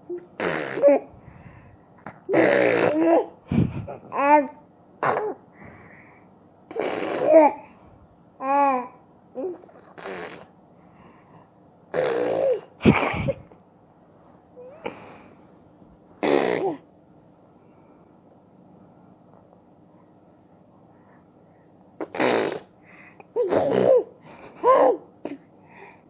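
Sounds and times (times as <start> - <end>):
baby babbling: 0.1 - 1.1, 4.1 - 5.4, 6.7 - 7.7, 8.4 - 10.1.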